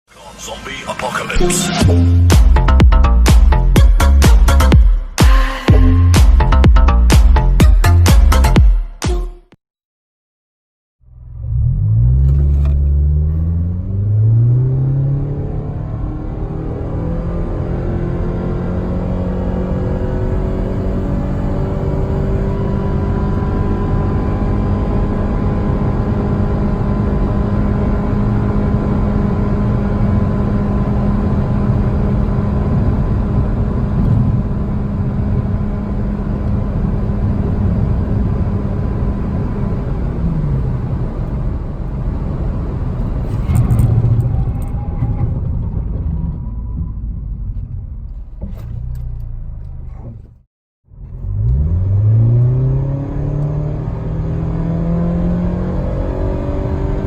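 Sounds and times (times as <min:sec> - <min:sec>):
car engine revving under load: 0:11.1 - 0:46.5, 0:48.1 - 0:57.0.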